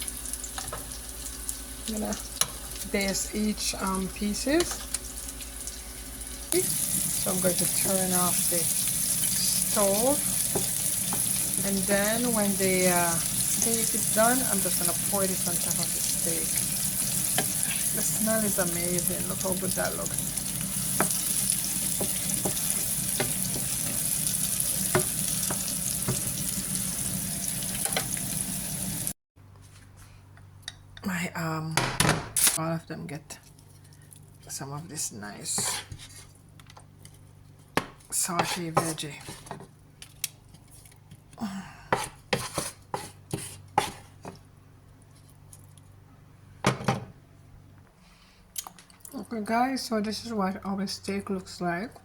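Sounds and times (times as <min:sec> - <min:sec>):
sauce sizzling in a frying pan: 0:00.0 - 0:03.2, 0:04.9 - 0:29.2.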